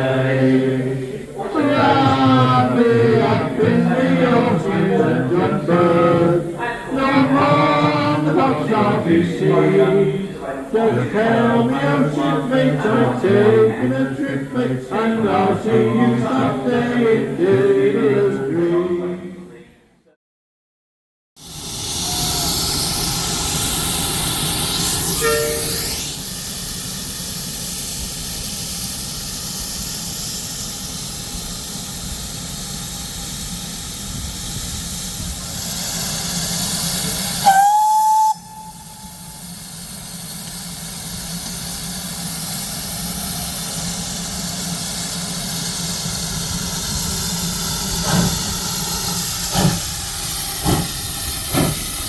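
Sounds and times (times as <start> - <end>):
steam whistle: 21.4 - 27.0, 35.5 - 42.1
hiss of escaping steam: 21.4 - 52.0
locomotive exhaust beats: 21.9 - 52.0.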